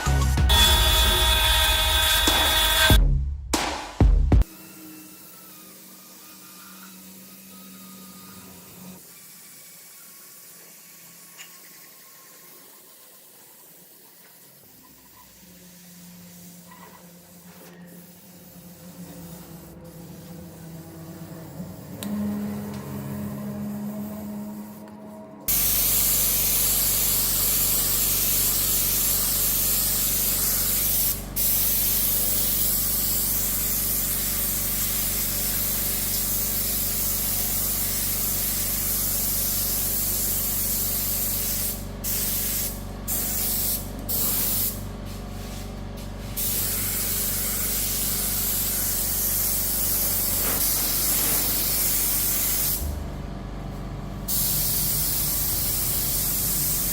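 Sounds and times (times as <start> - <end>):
spray gun hissing: 8.9 - 22.5, 25.5 - 52.9, 54.3 - 56.9
low machine hum: 15.3 - 25.9, 51.0 - 56.9.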